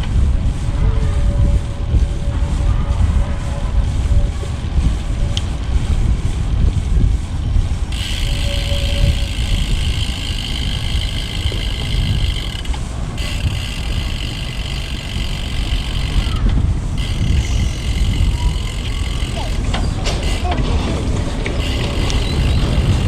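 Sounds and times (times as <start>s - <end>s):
bicycle tyre noise on path: 0.0s - 23.0s
wind rumbling on microphone: 0.0s - 23.0s
bicycle freewheel ratcheting buzz: 4.8s - 23.0s.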